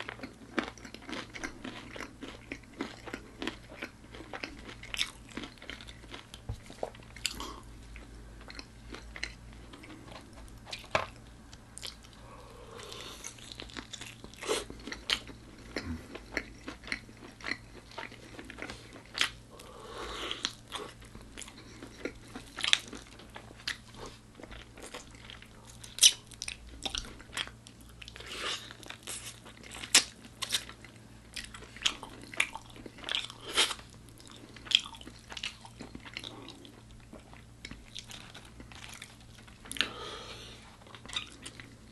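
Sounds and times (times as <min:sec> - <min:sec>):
crunching bites of crispy food: 0:00.0 - 0:07.6.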